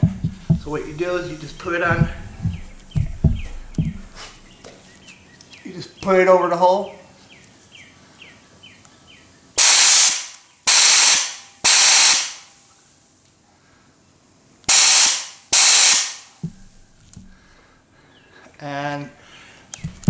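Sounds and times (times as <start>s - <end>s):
sandblaster hissing bursts: 0.0s - 4.5s, 9.6s - 12.5s, 14.7s - 16.4s.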